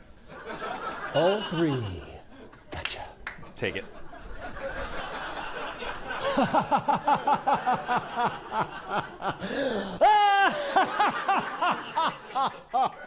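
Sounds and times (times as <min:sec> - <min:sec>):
person laughing: 0:06.2 - 0:13.0.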